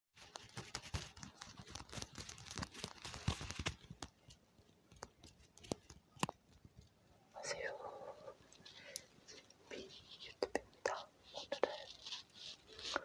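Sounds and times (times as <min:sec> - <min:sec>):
scratchy crackles on microphone: 0:00.2 - 0:06.8, 0:09.3 - 0:13.0.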